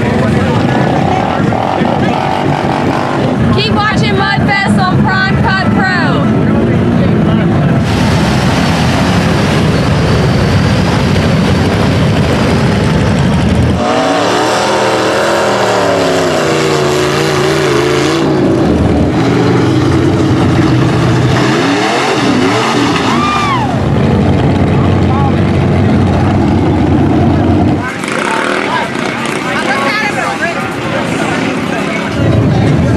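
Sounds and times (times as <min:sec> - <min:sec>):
truck engine revving hard: 0:00.0 - 0:32.9.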